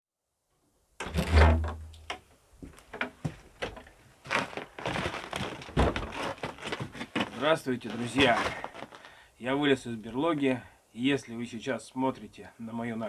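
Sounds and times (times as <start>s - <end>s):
rustling: 1.0s - 10.4s.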